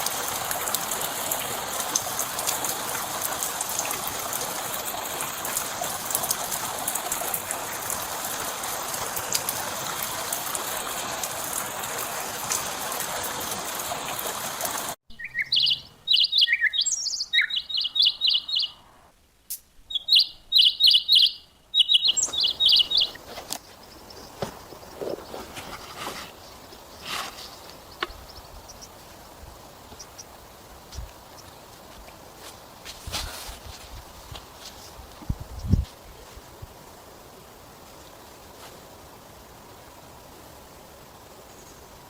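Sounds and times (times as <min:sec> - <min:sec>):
rushing hiss with crackles: 0:00.0 - 0:15.0, 0:22.1 - 0:42.0
small bird singing: 0:15.1 - 0:18.9, 0:19.9 - 0:25.4.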